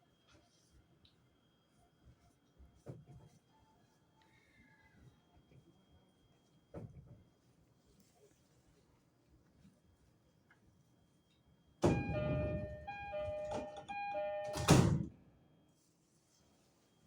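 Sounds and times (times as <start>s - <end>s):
two-note door chime: 11.8s - 15.0s
sliding doors shutting with a thud: 11.8s - 15.1s.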